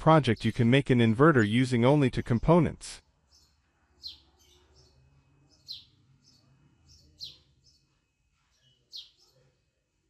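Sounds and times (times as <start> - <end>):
bird chirping: 0.0 - 9.6.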